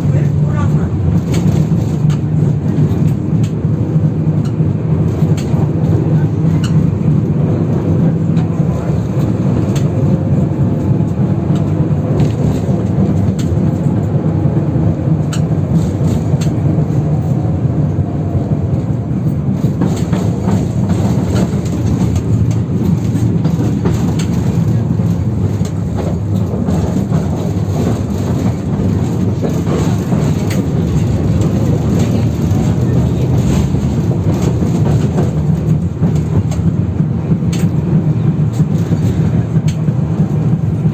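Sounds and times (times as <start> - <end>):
tram wheels rumbling on rails: 0.0 - 40.9
wheels clicking over rail joints: 19.2 - 40.9.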